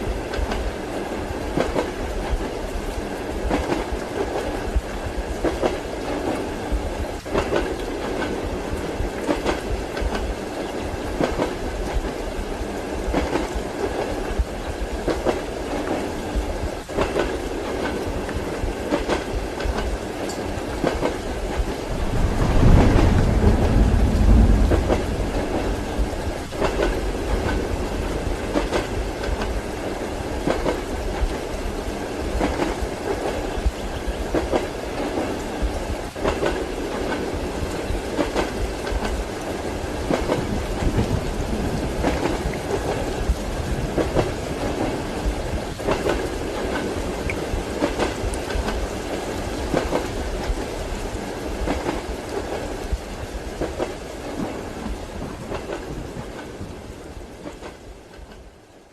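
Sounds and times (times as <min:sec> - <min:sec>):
rain hiss: 0:00.0 - 0:58.5
train running rumble: 0:00.0 - 0:58.5
train wheels clacking over joints: 0:16.8 - 0:29.7
deep low rumble: 0:21.9 - 0:26.6.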